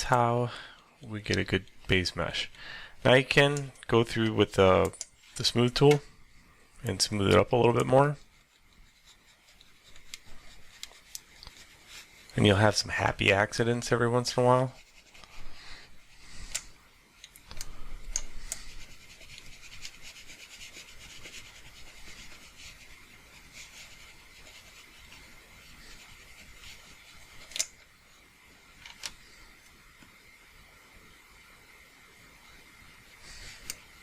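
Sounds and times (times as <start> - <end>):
mouse rubbing on pad: 8.1 - 12.3, 14.6 - 15.4, 18.3 - 27.5.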